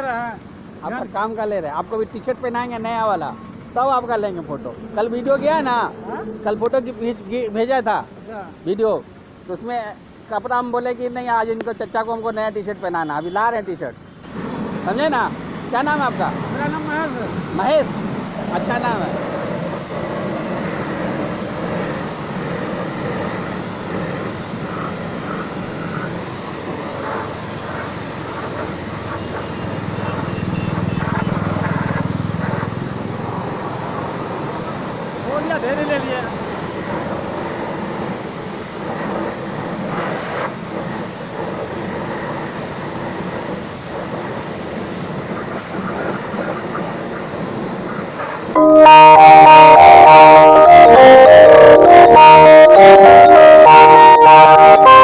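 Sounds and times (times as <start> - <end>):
machine drone with hiss: 14.2 - 35.3.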